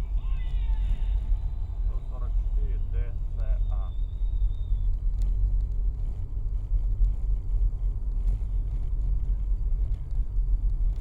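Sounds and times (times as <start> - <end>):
car driving rumble: 0.0 - 11.0.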